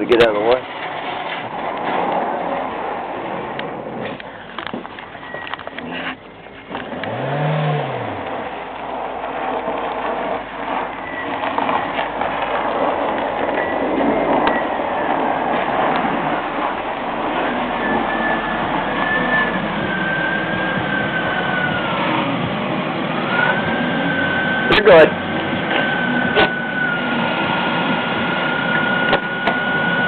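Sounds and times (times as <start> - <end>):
car engine running: 0.0 - 30.0
faint wavering whine: 13.3 - 30.0.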